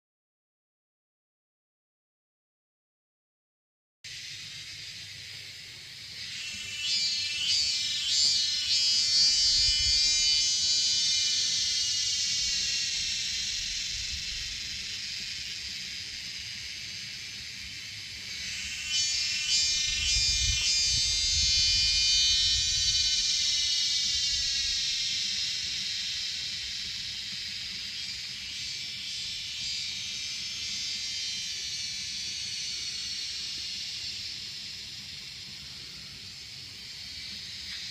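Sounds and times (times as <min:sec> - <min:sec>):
cicadas buzzing: 0:04.1 - 0:37.9
wind on microphone: 0:19.7 - 0:23.3.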